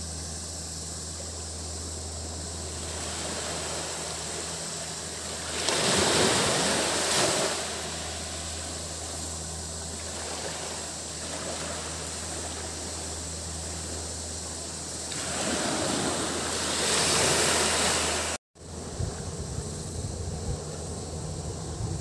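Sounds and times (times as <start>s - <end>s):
cicadas buzzing: 0.0s - 22.0s
surf washing onto beach: 2.7s - 8.8s, 9.9s - 13.1s, 15.0s - 18.4s
wind on microphone: 15.2s - 22.0s.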